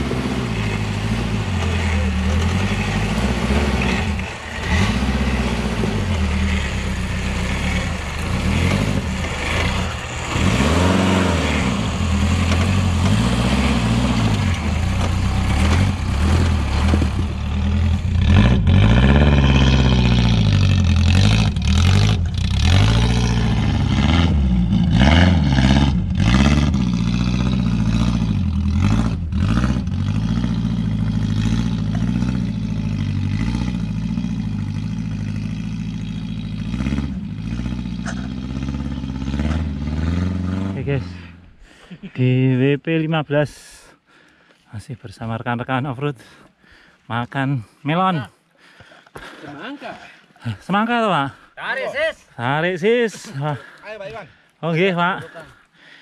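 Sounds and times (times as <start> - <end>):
vehicle engine revving under load: 0.0 - 41.8.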